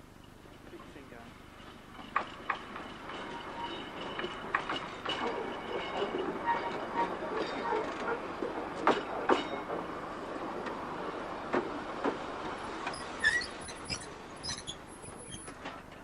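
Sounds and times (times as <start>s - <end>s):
electric tram rumbling on track: 0.0s - 16.0s
wheels clicking over rail joints: 0.2s - 16.0s
high squeaks: 5.1s - 7.9s, 12.9s - 15.7s.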